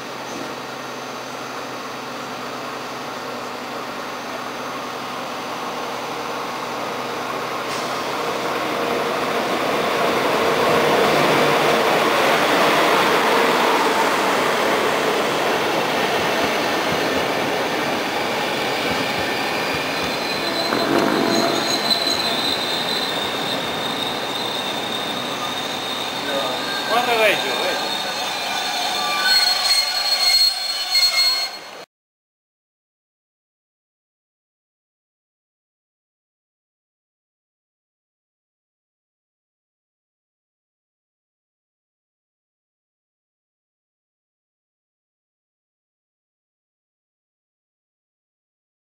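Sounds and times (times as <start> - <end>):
train running on track: 0.0 - 31.8
wheels squealing: 16.3 - 31.8.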